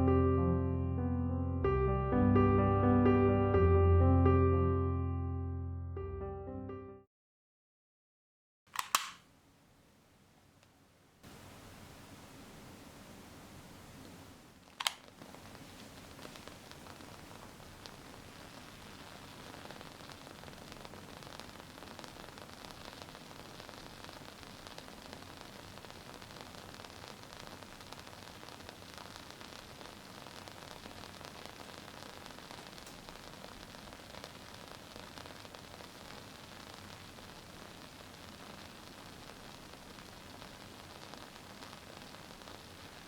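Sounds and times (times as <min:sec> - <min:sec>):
candle wick crackling: 0:08.8 - 0:09.2, 0:13.3 - 0:43.0.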